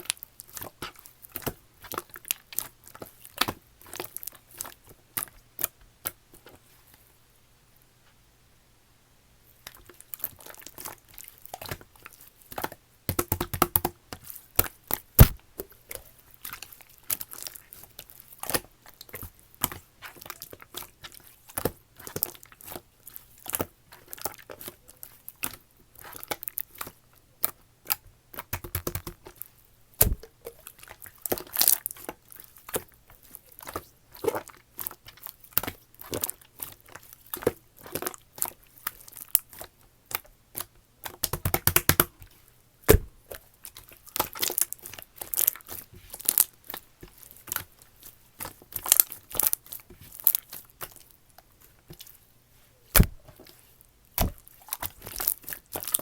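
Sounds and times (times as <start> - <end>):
slime being squished by hand: 0.0 - 6.6, 9.6 - 52.2, 52.9 - 56.0
sticky clicks and crackles: 9.7 - 42.1, 54.2 - 56.0.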